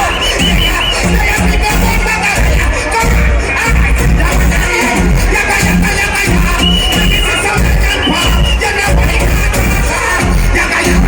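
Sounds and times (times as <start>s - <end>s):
reggae music with heavy bass: 0.0s - 11.0s.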